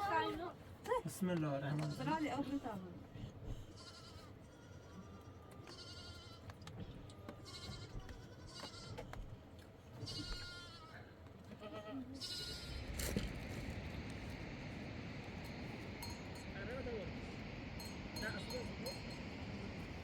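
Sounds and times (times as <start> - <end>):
livestock bleating: 3.7 - 6.5, 7.3 - 9.0, 10.0 - 12.9.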